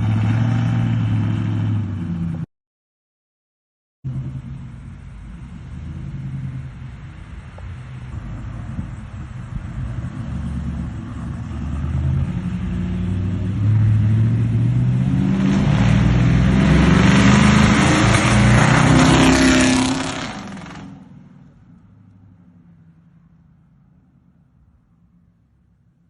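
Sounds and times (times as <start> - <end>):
car engine revving: 0.0 - 2.5, 4.1 - 21.2
loud exhaust noise: 4.1 - 21.1.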